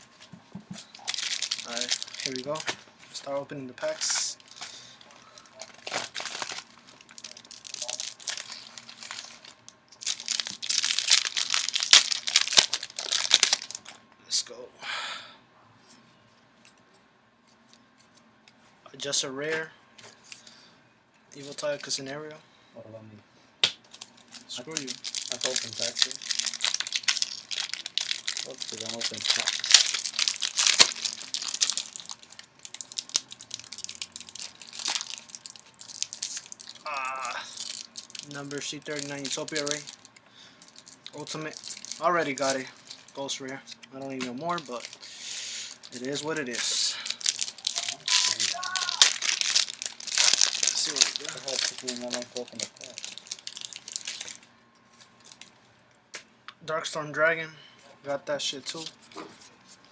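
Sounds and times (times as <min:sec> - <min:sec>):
foil wrappers crinkling and tearing: 0:00.8 - 0:03.2, 0:03.8 - 0:13.9, 0:23.9 - 0:43.4, 0:44.1 - 0:54.4, 0:55.0 - 0:55.5
cards ticking and rustling: 0:24.6 - 0:32.2, 0:45.9 - 0:54.3.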